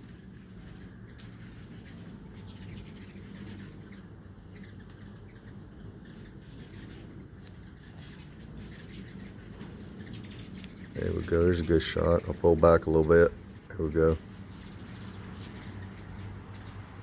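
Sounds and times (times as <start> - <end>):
hummingbirds chirping: 0.0 - 17.0.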